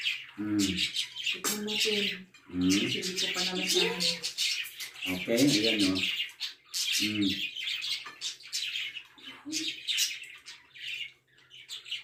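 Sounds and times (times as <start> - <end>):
small birds chirping: 0.0 - 12.0
murmur of voice: 0.4 - 0.8.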